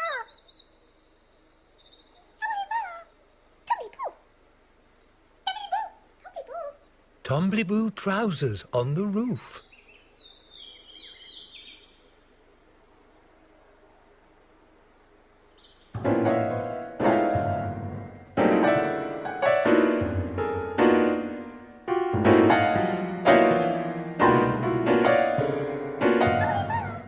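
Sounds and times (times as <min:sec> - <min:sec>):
faint hiss: 0:00.4 - 0:27.0
slow sad piano chords: 0:16.0 - 0:27.0.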